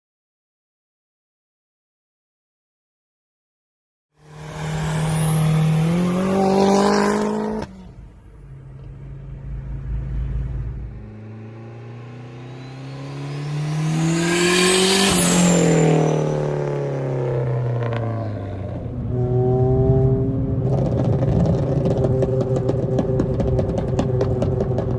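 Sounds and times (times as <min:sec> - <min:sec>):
car passing by: 0:04.2 - 0:08.0, 0:08.7 - 0:17.2
car engine accelerating: 0:04.2 - 0:24.9.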